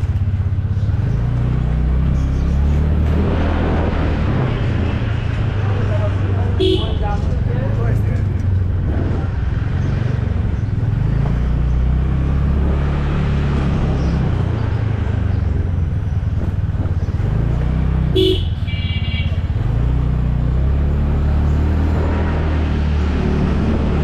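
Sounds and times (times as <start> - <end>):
motorcycle engine on the road: 0.0 - 24.0
vehicle horn honking: 6.6 - 7.2, 18.1 - 19.4.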